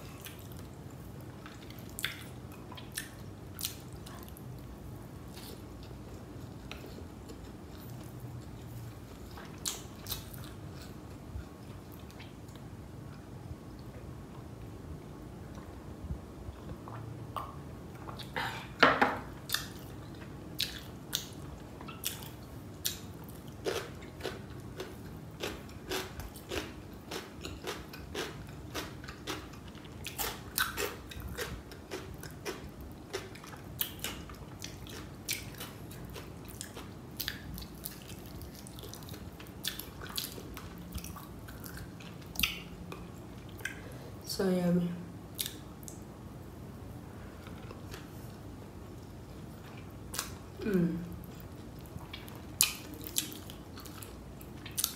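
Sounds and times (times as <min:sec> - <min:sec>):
person chewing: 0:01.4 - 0:04.4, 0:05.3 - 0:13.2, 0:19.5 - 0:44.0, 0:45.4 - 0:46.0, 0:47.2 - 0:54.9.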